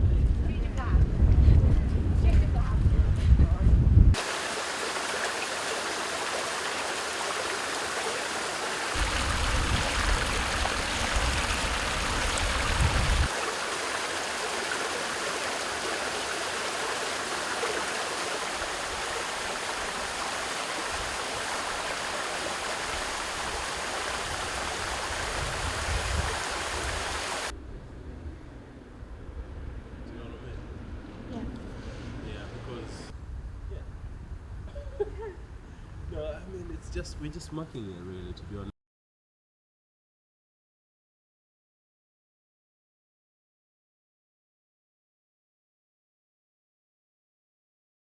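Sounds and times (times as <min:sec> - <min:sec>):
fast-flowing water rushing: 0:04.2 - 0:27.5.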